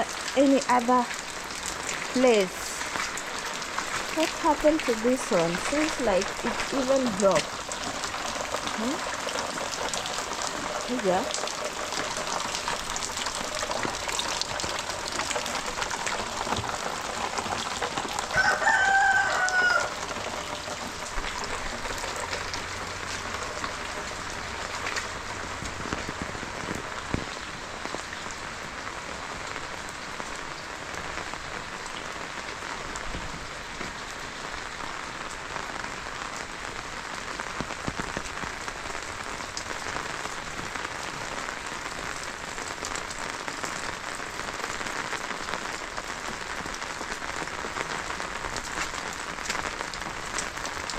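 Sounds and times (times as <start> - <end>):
steady rain falling: 0.0 - 50.9
rooster crowing: 18.3 - 20.0.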